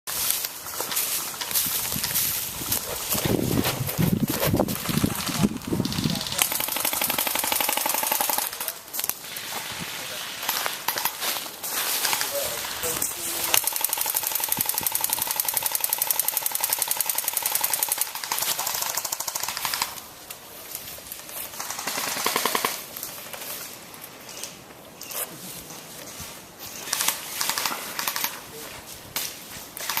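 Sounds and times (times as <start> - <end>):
airsoft guns firing: 4.7 - 8.8, 13.4 - 20.0, 21.6 - 22.9, 26.9 - 28.4.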